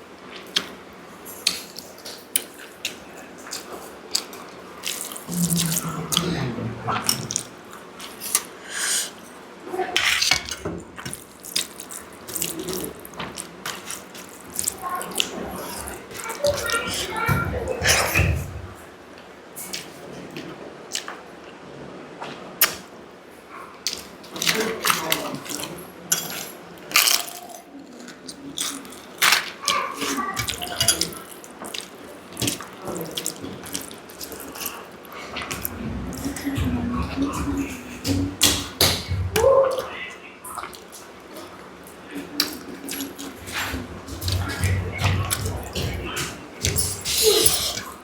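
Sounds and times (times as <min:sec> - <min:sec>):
wet chewing: 0:01.4 - 0:08.5, 0:11.0 - 0:17.4, 0:23.9 - 0:39.9, 0:42.2 - 0:48.0.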